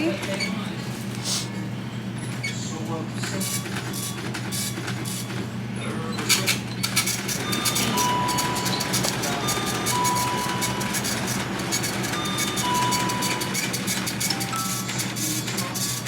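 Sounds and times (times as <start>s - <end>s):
music with fast ticking beat: 7.2s - 16.0s
idling trucks hum: 7.4s - 15.0s.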